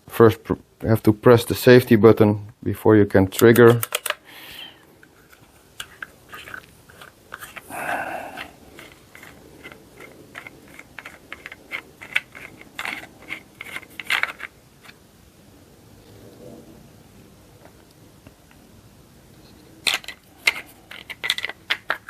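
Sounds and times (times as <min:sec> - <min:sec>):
plastic clicks and knocks: 0:03.3 - 0:04.2, 0:19.9 - 0:22.0.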